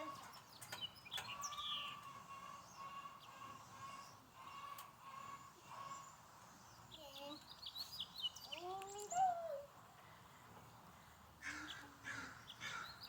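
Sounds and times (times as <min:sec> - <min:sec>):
faint bird chirps: 0:06.8 - 0:09.7.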